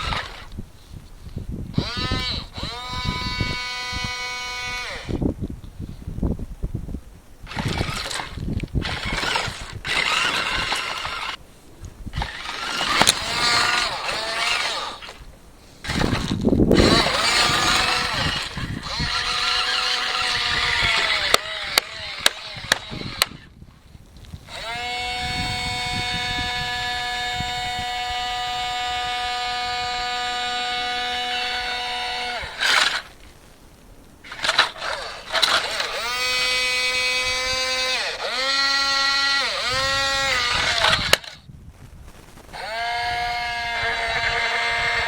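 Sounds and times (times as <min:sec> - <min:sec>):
small electric motors whining: 0:00.0 - 0:06.0, 0:07.4 - 0:11.4, 0:12.0 - 0:33.6, 0:34.2 - 0:41.5, 0:42.3 - 0:45.0
sharp clicks: 0:07.5 - 0:23.5, 0:34.3 - 0:41.4.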